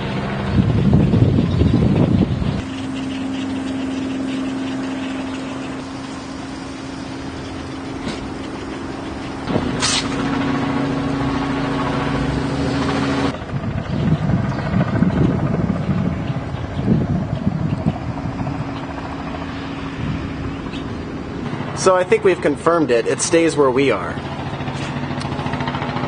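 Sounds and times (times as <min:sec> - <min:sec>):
uneven low rumble: 0:00.0 - 0:21.8
heavy vehicle engine running: 0:00.0 - 0:26.0
short sharp hiss: 0:09.8 - 0:10.2.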